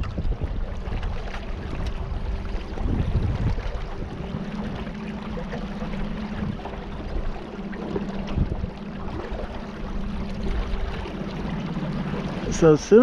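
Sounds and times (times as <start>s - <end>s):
river water splashing: 0.0s - 13.0s
small boat motor humming: 0.0s - 13.0s.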